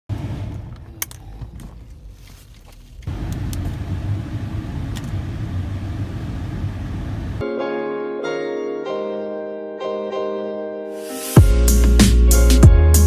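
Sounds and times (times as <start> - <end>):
car engine rumbling: 0.1 - 7.4.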